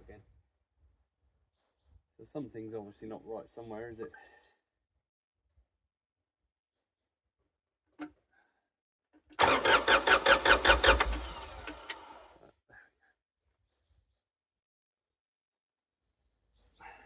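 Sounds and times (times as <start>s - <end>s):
diesel engine cranking: 9.4s - 12.3s.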